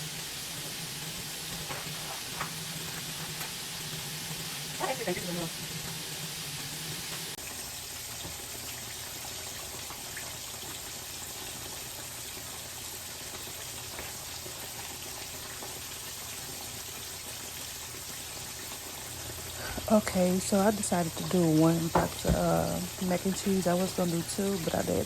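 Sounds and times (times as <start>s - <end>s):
food sizzling in a pan: 0.0s - 25.0s.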